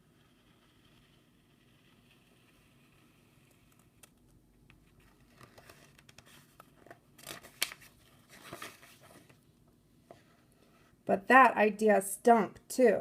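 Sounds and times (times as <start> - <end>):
book pages rustling and turning: 0.7 - 11.0.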